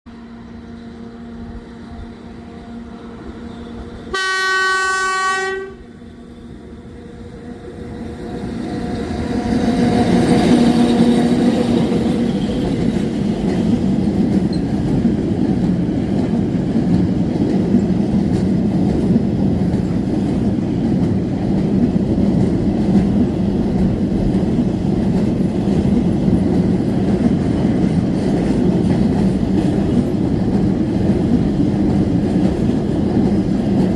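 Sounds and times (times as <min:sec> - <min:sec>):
train rolling over rails: 0:00.1 - 0:33.9
train horn blast: 0:03.6 - 0:06.0.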